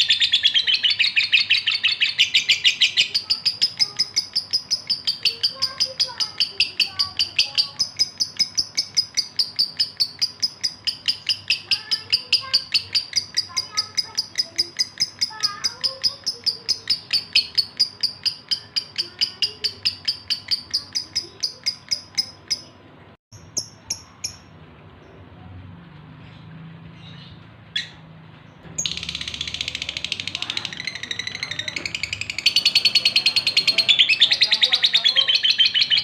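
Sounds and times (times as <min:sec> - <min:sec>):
lovebird chirping: 0:00.0 - 0:24.5, 0:28.7 - 0:36.0.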